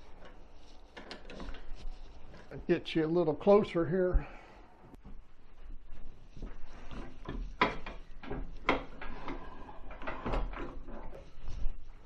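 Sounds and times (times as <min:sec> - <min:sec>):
knocks and clunks of wood lathe: 0:06.9 - 0:11.2.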